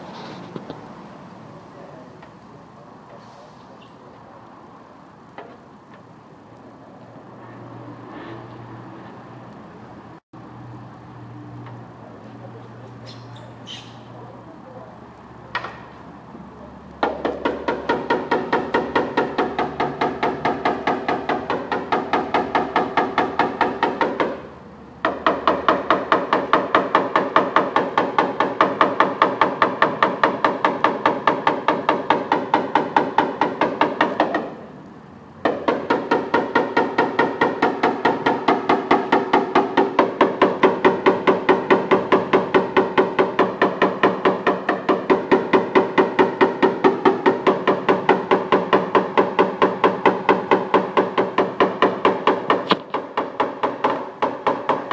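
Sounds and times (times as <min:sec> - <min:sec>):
hammer tapping sheet metal: 0:35.4 - 0:54.9.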